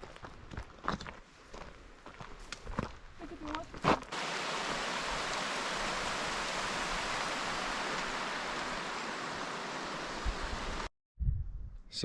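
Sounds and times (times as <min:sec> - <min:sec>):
rushing stream water: 0:04.1 - 0:10.9.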